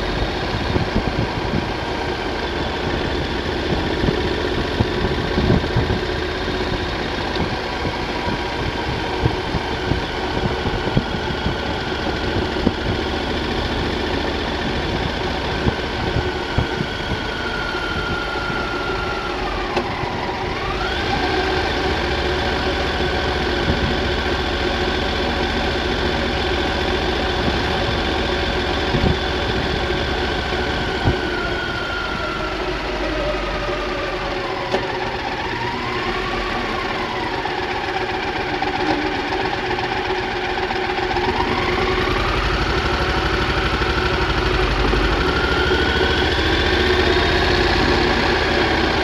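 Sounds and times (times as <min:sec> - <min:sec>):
wind noise: 0:00.0 - 0:33.9
motorcycle engine running: 0:00.0 - 0:49.0
road rumble: 0:00.0 - 0:49.0.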